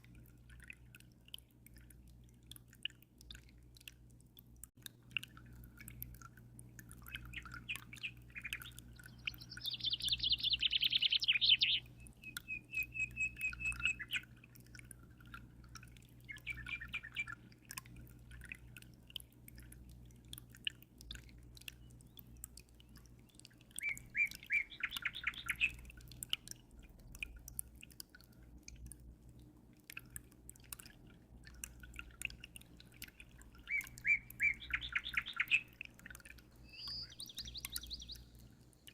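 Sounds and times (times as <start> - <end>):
faint water dripping: 0.0 - 38.9
songbirds chirping and trilling: 6.8 - 18.9, 21.5 - 26.3, 31.9 - 38.9.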